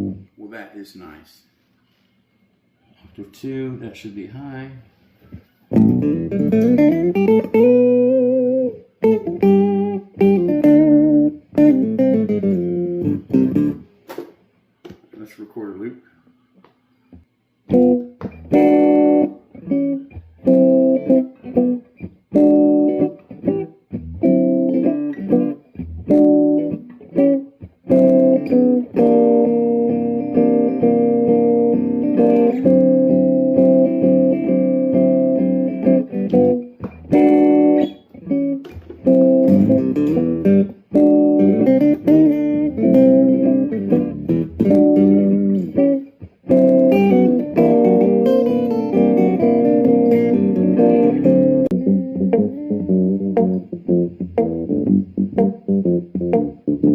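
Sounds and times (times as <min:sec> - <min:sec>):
acoustic guitar strumming chords: 0:17.7 - 0:56.9.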